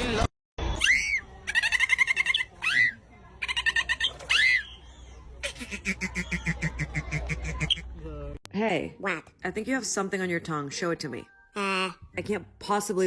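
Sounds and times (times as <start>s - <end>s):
dolphin whistles: 0.7s - 1.4s.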